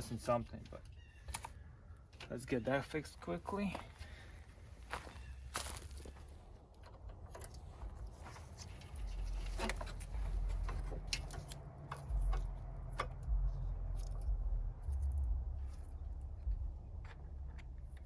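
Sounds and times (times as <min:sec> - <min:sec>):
low rumble: 0:05.3 - 0:18.0.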